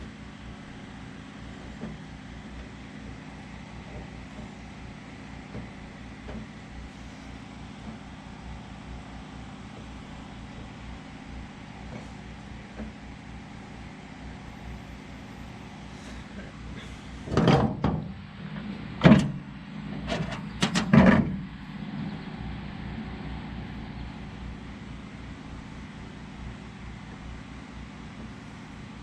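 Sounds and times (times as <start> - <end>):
steady background hum: 0.0 - 29.0
tools knocking and clattering: 20.1 - 21.4.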